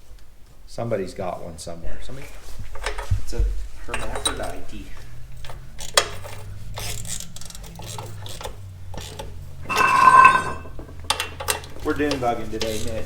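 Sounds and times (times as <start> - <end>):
metal parts clinking: 9.7 - 10.6
ringing tone: 9.7 - 10.6.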